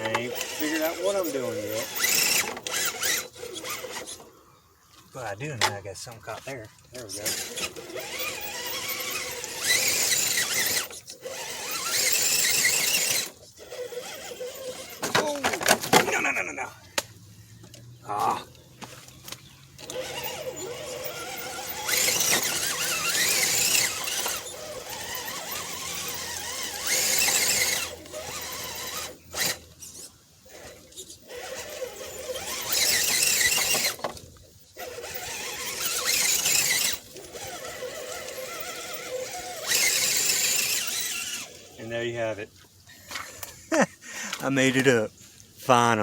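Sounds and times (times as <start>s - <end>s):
electric motor whining: 0.0s - 4.4s, 6.9s - 16.5s, 19.2s - 42.4s.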